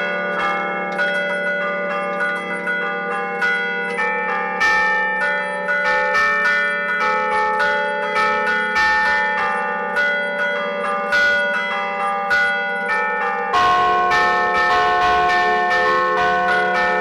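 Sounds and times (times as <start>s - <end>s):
church bells ringing: 0.0s - 17.0s.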